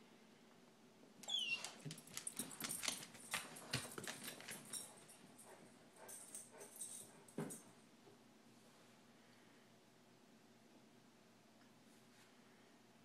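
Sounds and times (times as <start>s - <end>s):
puppy high falling squeak: 1.2s - 1.8s.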